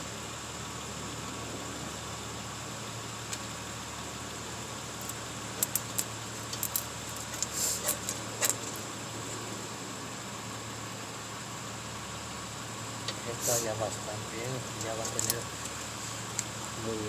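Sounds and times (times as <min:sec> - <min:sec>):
steady background hum: 0:00.0 - 0:17.0
short scraping rustle: 0:07.2 - 0:08.9.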